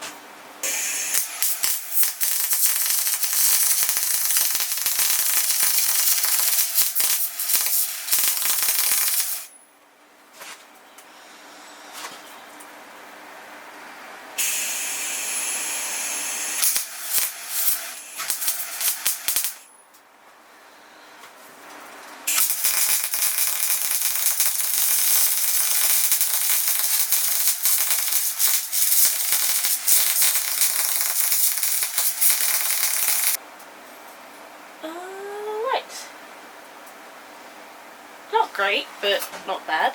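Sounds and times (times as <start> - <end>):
welding arc crackling and sizzling: 0.6 - 9.6, 14.4 - 19.7, 22.3 - 33.4.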